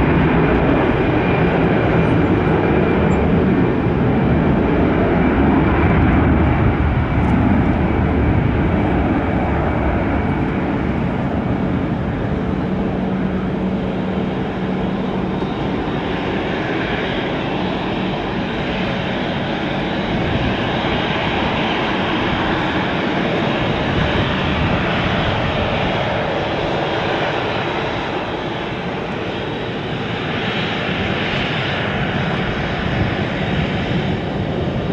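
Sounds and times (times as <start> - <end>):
jet engines roaring: 0.0 - 34.9.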